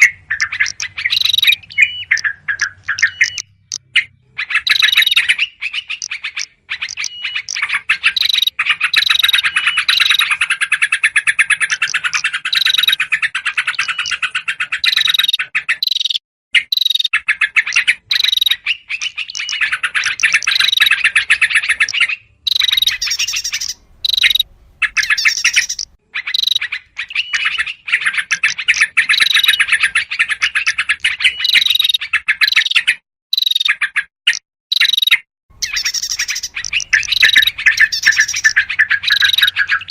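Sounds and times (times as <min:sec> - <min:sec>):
bulbuls chattering: 0:00.0 - 0:05.3, 0:11.5 - 0:15.3, 0:19.0 - 0:27.2, 0:35.5 - 0:39.9
small songbirds: 0:00.0 - 0:39.9.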